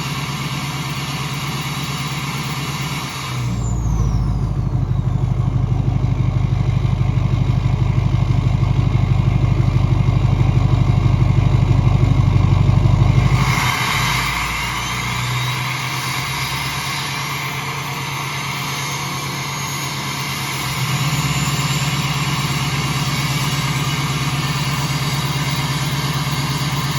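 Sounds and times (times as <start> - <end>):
diesel engine idling: 0.0 - 26.9
faint high whistle: 13.3 - 26.9.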